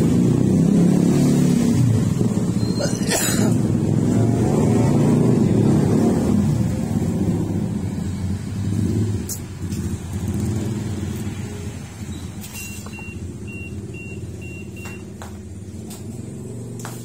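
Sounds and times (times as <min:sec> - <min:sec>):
vehicle engine humming: 0:01.6 - 0:17.0
short high beeps: 0:12.1 - 0:15.1.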